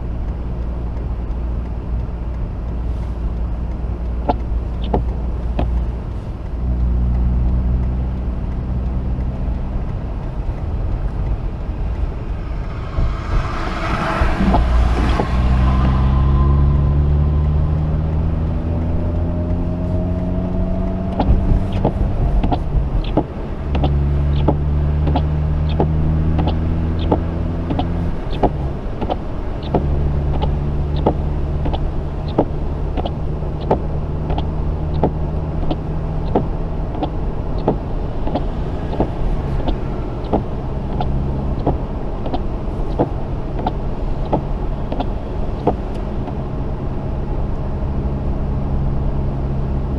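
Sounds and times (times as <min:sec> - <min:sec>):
rotary car engine accelerating: 0:00.0 - 0:49.9
regular ticks: 0:00.1 - 0:16.0, 0:16.7 - 0:46.4.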